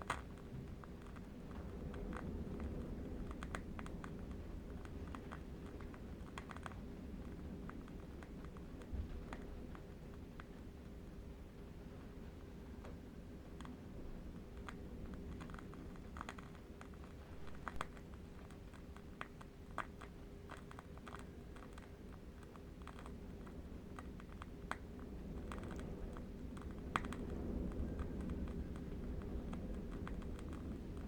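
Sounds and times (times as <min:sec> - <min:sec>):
distant wind rumble: 0:01.3 - 0:18.8
candle wick crackling: 0:13.0 - 0:31.0.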